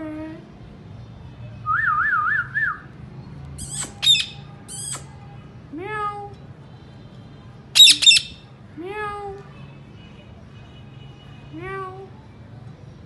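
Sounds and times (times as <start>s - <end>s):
parrot whistling and squawking: 3.6s - 5.1s, 7.8s - 8.4s.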